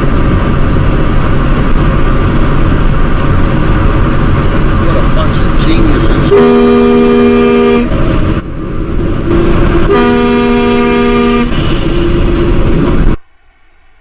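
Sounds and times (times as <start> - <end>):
road noise: 0.0 - 14.0
vehicle horn honking: 6.2 - 8.0, 9.3 - 12.7.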